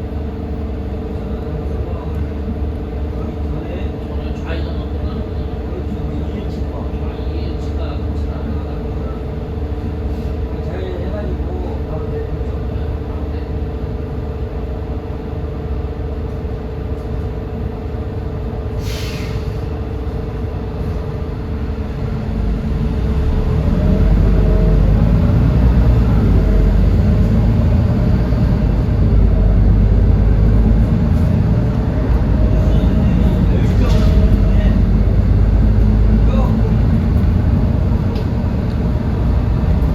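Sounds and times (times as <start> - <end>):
bus engine humming and whining: 0.0 - 39.9
air hiss: 18.8 - 19.7.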